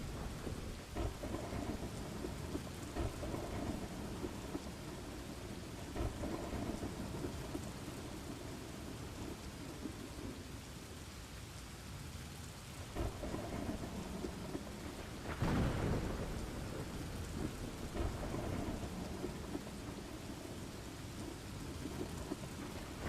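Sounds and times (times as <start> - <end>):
low rumbling thunder: 0.0 - 10.6, 12.7 - 23.0
steady rain: 0.0 - 23.0.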